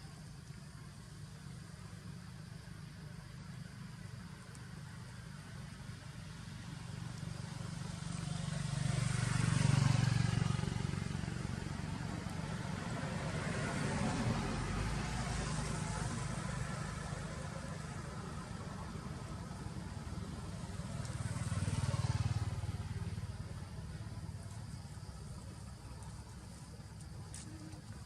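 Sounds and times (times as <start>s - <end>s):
vehicles passing: 4.9s - 28.0s.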